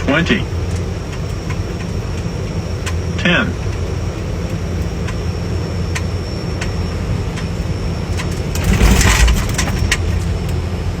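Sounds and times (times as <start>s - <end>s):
airplane engines and wheels rumbling: 0.0s - 11.0s
rattling clicks: 8.1s - 10.6s.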